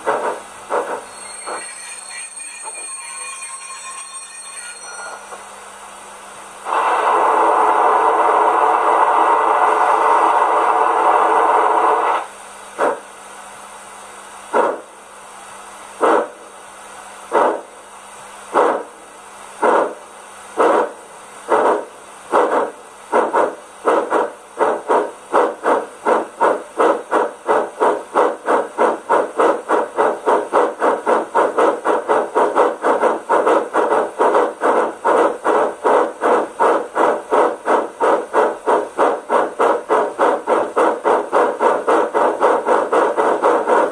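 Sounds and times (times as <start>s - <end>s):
steam locomotive exhaust chuffs: 0.0s - 3.3s, 4.7s - 43.9s
steam blast from small speaker: 6.6s - 13.1s.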